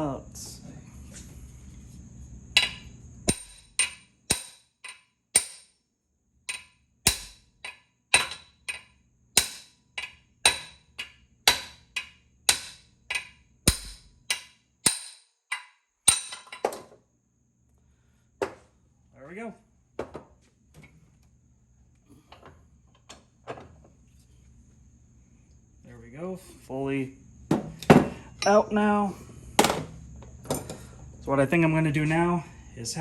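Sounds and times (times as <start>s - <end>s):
hammer striking metal: 2.6s - 5.8s, 6.5s - 16.6s.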